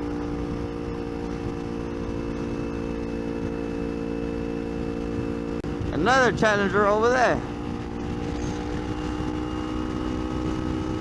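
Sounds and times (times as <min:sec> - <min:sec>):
motorcycle engine cruising: 0:00.0 - 0:11.0
wind rumble on microphone: 0:00.0 - 0:11.0.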